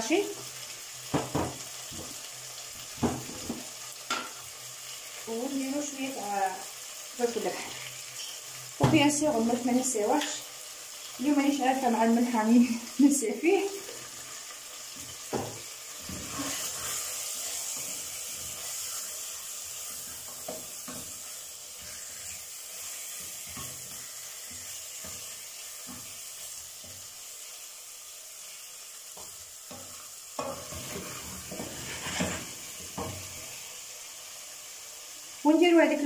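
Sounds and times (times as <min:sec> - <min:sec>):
chicken sizzling in oil: 0:00.0 - 0:36.0
wooden spoon scraping a pot: 0:15.9 - 0:25.3, 0:30.4 - 0:33.2.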